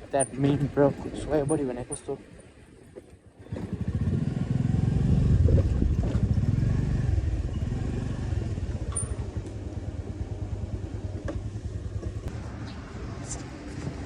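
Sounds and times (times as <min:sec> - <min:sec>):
motorcycle engine running: 0:03.3 - 0:14.0.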